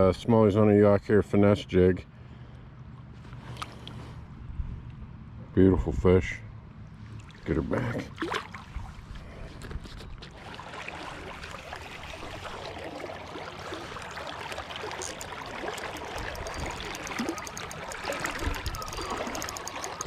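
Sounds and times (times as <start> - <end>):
river water rushing: 10.4 - 20.0.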